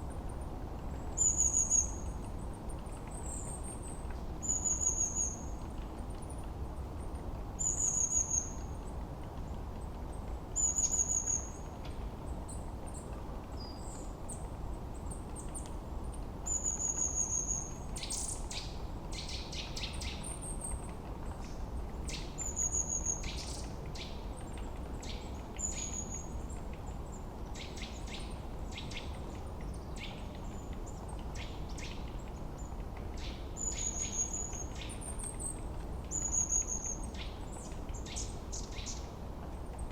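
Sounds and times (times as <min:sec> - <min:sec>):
low background hiss: 0:00.0 - 0:39.9.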